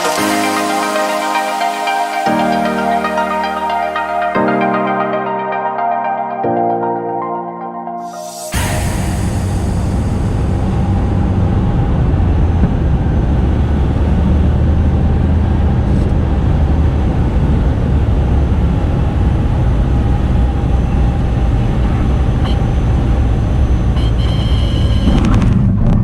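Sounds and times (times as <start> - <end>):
thin high tone: 0.0 - 11.2
aircraft piston engine droning: 8.3 - 12.6.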